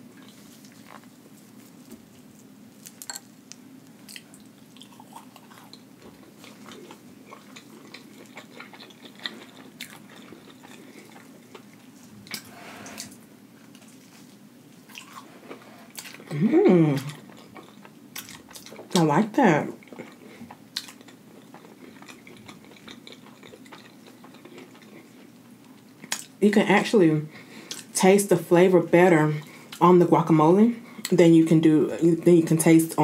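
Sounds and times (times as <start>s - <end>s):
chewing crunchy food: 0.0s - 3.2s, 3.9s - 12.4s, 14.8s - 26.4s
person humming mmm: 16.3s - 17.2s.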